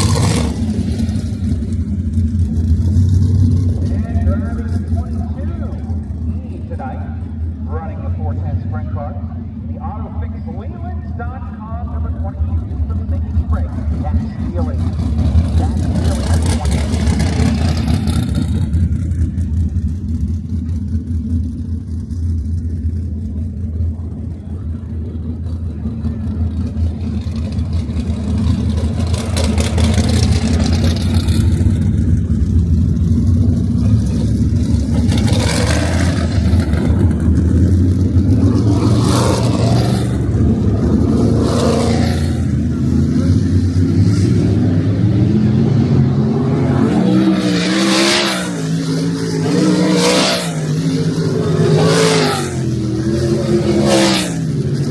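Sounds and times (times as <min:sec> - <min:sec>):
race car engines droning: 0:00.0 - 0:54.9
cars sweeping past: 0:26.5 - 0:54.9.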